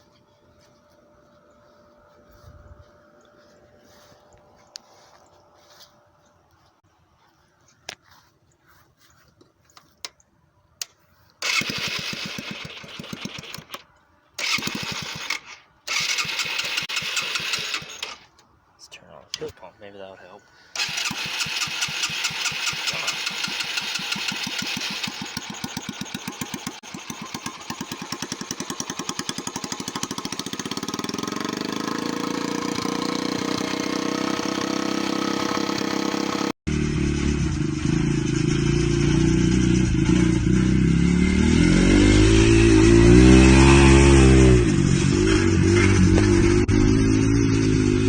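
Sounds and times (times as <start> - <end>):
lawn mower engine running: 11.4 - 18.4, 20.7 - 48.0.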